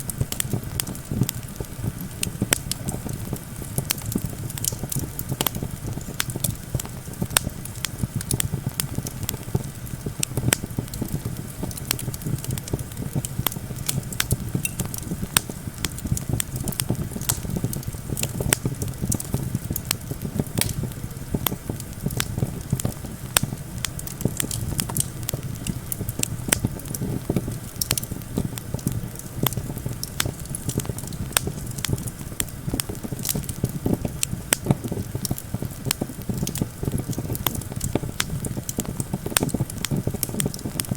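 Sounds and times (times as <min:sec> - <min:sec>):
campfire crackling and popping: 0:00.0 - 0:40.9
low wind rumble: 0:00.0 - 0:40.9.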